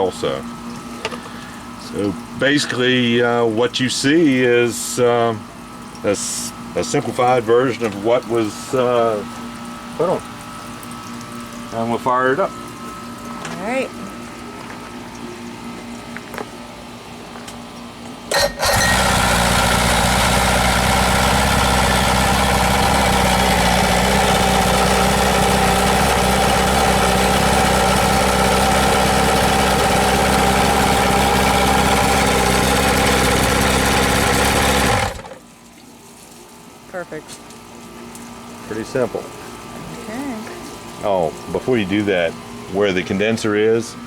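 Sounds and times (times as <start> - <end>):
outboard motor cranking and running: 18.3 - 35.5.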